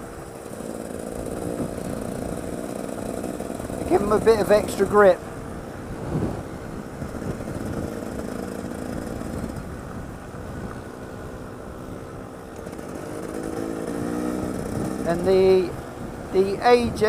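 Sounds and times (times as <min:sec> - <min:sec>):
motorcycle engine revving: 0:00.0 - 0:10.8, 0:11.4 - 0:17.0
wind rumble on microphone: 0:01.1 - 0:02.5, 0:03.5 - 0:12.3, 0:14.2 - 0:17.0.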